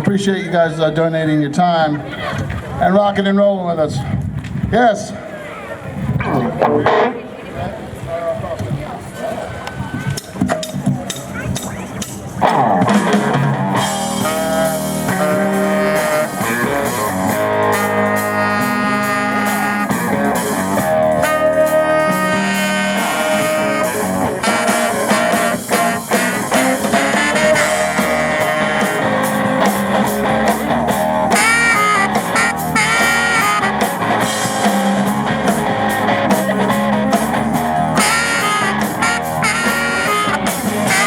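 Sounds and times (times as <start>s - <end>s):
live blues-rock band: 10.2s - 41.0s.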